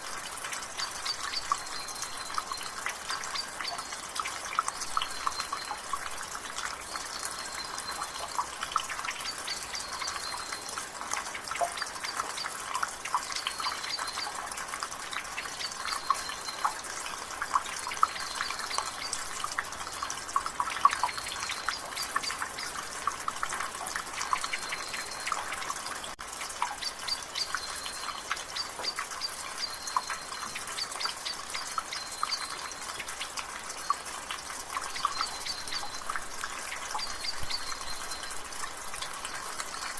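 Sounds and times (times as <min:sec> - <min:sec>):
rain hiss: 0:00.0 - 0:39.9
water dripping from gutter: 0:00.0 - 0:39.9
bird chirping: 0:06.9 - 0:10.7, 0:13.2 - 0:14.4, 0:17.8 - 0:19.4, 0:24.2 - 0:25.6, 0:26.6 - 0:34.0, 0:34.8 - 0:38.4.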